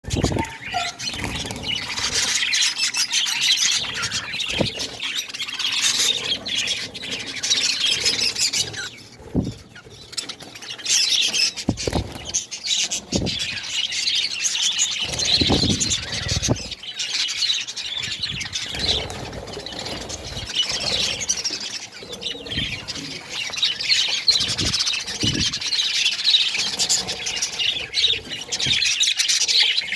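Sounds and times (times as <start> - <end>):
budgerigars chattering: 0.1 - 29.9.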